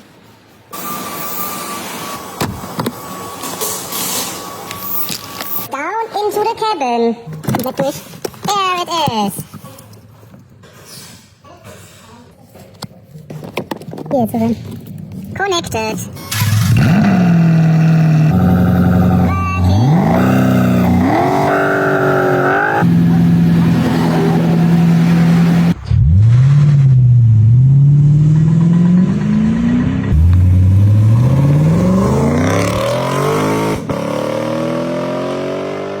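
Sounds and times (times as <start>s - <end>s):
engine idling and revving: 16.3s - 36.0s.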